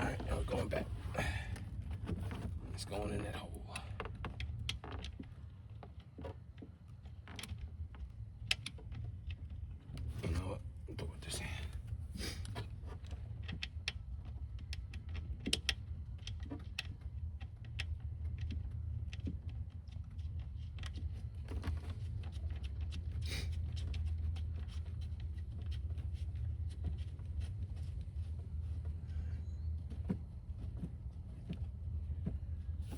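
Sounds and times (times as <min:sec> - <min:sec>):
steady low hum: 0:00.0 - 0:32.9
small metallic clicks and taps: 0:12.5 - 0:23.0.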